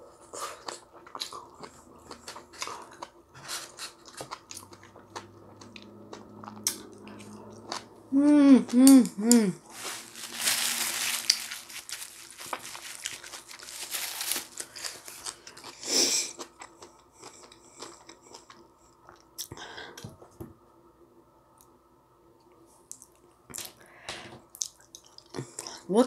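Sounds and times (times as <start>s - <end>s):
person chewing noodles: 0.0s - 19.6s.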